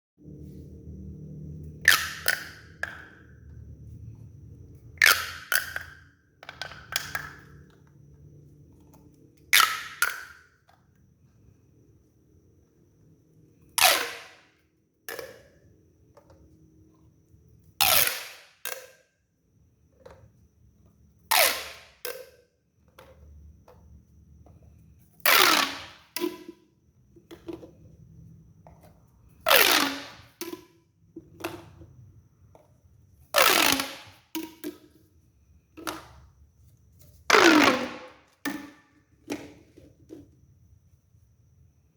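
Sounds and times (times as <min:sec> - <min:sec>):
plastic pop tube popping: 0:01.8 - 0:03.4, 0:09.6 - 0:10.5, 0:29.5 - 0:31.8, 0:37.3 - 0:40.2.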